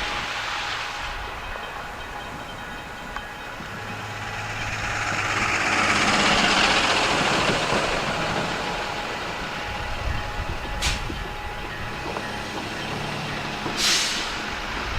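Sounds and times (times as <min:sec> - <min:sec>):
heavy vehicle passing: 0:03.9 - 0:09.1.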